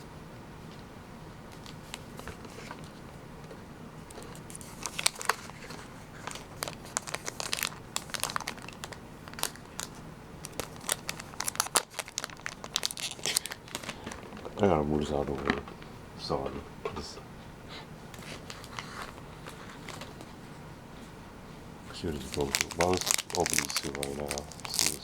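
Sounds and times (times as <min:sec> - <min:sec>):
packaging crinkling and tearing: 0:01.5 - 0:03.0, 0:04.1 - 0:15.6, 0:18.2 - 0:20.3, 0:21.9 - 0:25.0.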